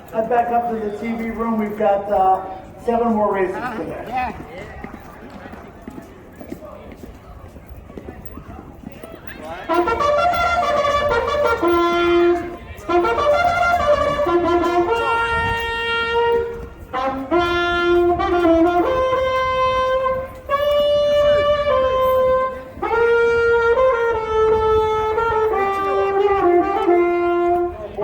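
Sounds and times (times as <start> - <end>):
brass horn playing slow melody: 9.7 - 28.0.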